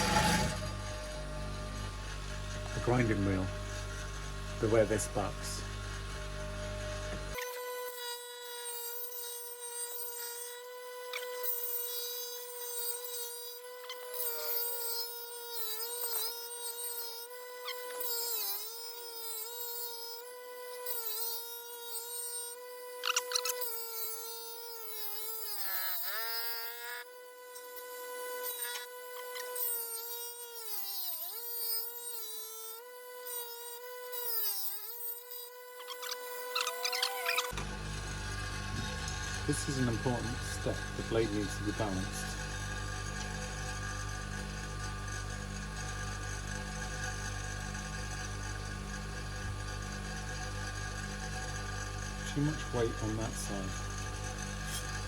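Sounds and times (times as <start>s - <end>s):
metal blade scraping on grinder: 0.0s - 6.1s, 33.4s - 55.0s
grinding wheel whine: 0.0s - 55.0s.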